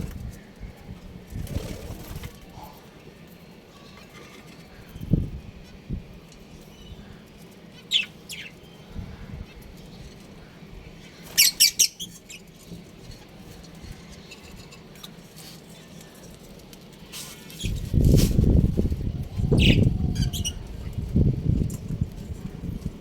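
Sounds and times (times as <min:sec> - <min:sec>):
budgerigars chirping: 0:11.3 - 0:12.4.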